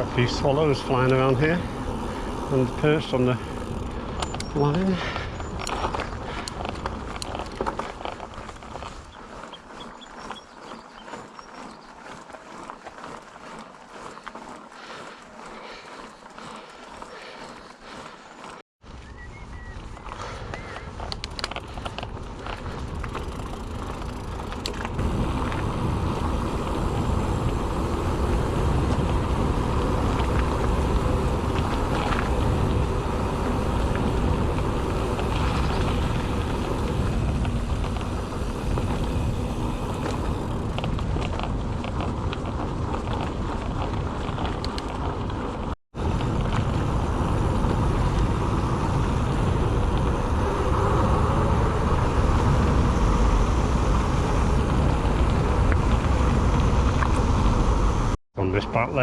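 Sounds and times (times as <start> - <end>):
bike tyres humming on tarmac: 0.0 - 59.0
wind buffeting microphone: 18.9 - 58.2.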